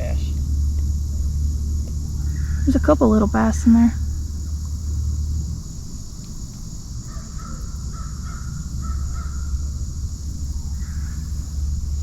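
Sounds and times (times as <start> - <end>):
bird calling: 0.0 - 4.6, 7.0 - 12.0
high insect drone: 0.0 - 12.0
low rumble: 0.0 - 12.0.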